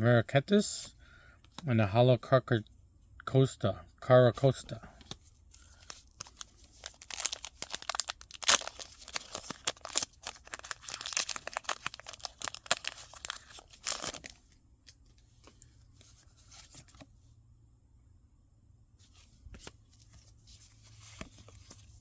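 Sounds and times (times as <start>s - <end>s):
foil wrapper tearing and crinkling: 5.6s - 14.4s
faint handling sounds: 8.8s - 17.4s, 19.0s - 22.0s.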